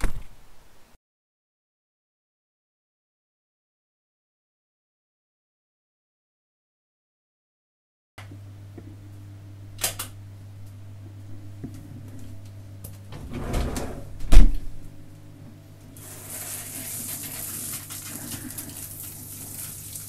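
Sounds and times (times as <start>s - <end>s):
low hum: 8.2s - 16.0s
shower door thumping shut: 13.1s - 14.8s
shower water spraying: 16.0s - 20.0s.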